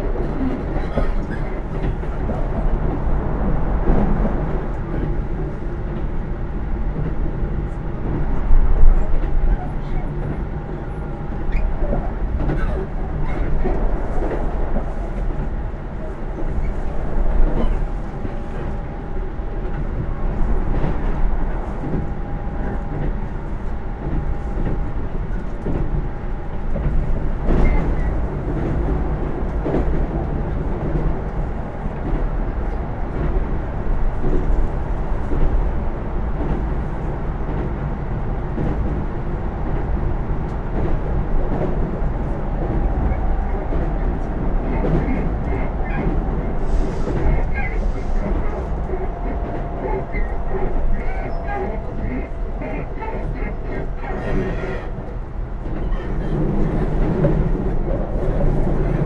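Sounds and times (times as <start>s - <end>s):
train rumbling: 0.0s - 59.0s.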